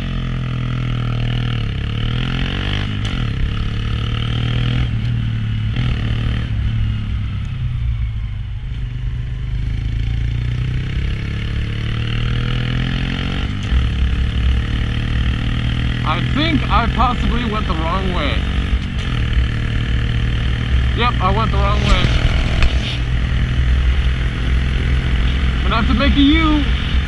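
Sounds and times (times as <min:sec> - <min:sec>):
motorcycle engine running: 0:00.0 - 0:27.0
wind noise rumble: 0:21.6 - 0:27.0.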